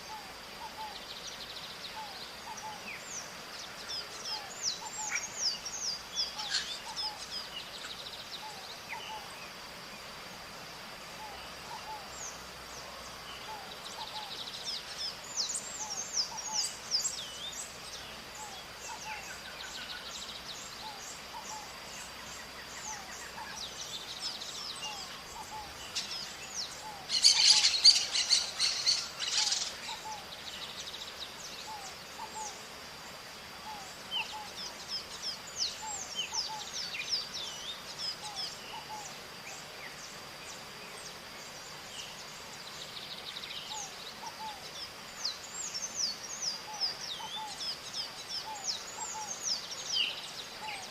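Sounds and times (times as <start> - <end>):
parrots chirping: 27.1 - 29.8.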